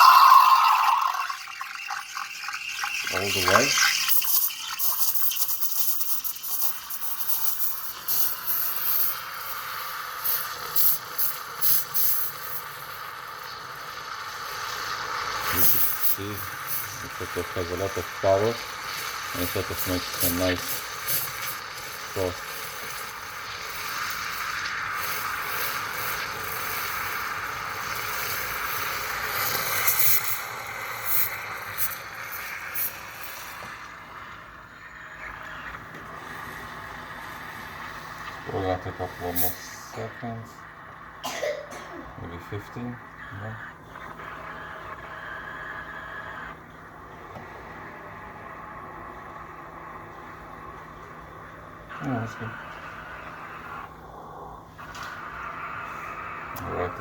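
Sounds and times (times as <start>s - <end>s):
steam wand hissing: 14.3s - 34.2s, 36.2s - 40.1s
steam wand sputters: 15.4s - 33.7s.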